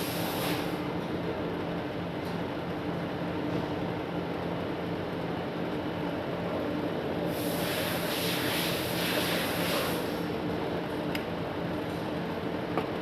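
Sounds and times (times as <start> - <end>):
exhaust fan humming: 0.0 - 13.0
loud hiss: 7.3 - 10.2.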